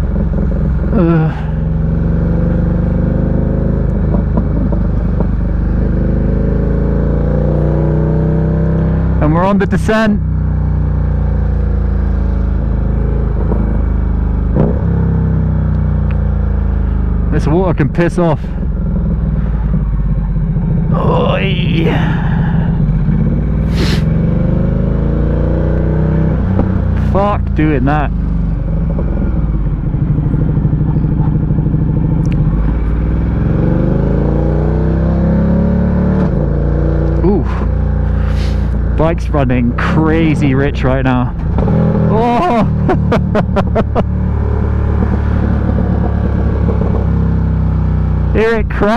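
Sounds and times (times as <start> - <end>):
motorcycle engine running: 0.0 - 48.9
rider talking: 0.9 - 1.6, 9.2 - 10.3, 17.3 - 18.6, 20.9 - 22.8, 23.7 - 24.1, 26.9 - 28.2, 37.2 - 41.4, 42.0 - 43.6, 48.3 - 48.9.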